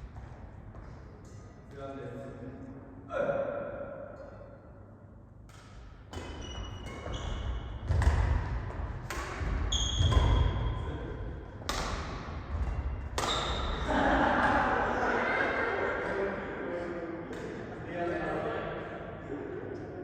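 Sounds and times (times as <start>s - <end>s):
racket hitting shuttlecock: 5.4s - 10.8s, 11.6s - 14.6s
court shoes squeaking: 5.5s - 10.9s, 12.5s - 13.9s.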